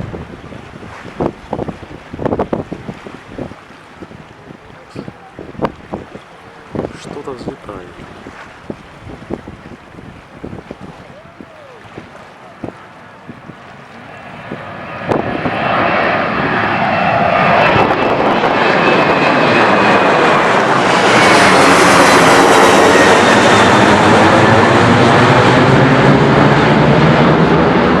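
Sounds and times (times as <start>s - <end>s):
jet engines at takeoff power: 12.4s - 28.0s.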